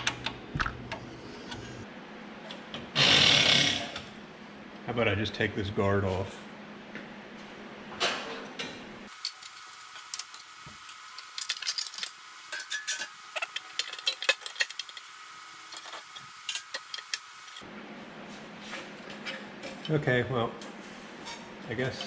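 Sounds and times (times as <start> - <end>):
metal tools clinking and tapping: 9.2 - 15.1, 15.7 - 17.3.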